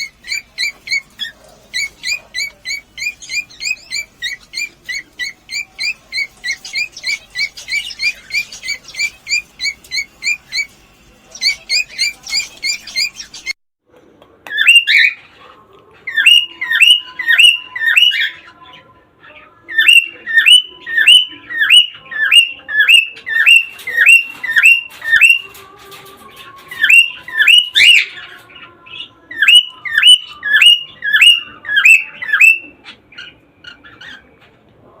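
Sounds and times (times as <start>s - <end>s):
cockatiel down-slurred calls: 0.0s - 10.7s.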